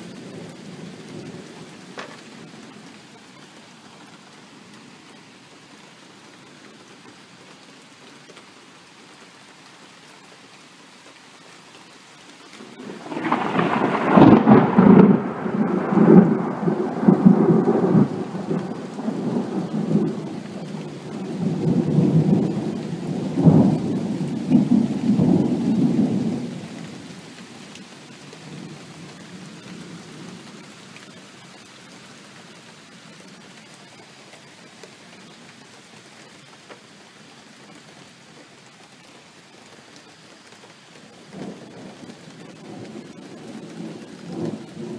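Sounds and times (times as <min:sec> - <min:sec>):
steady rain: 0:00.0 - 0:44.9
thunder rumbling: 0:12.6 - 0:30.7, 0:41.2 - 0:44.9.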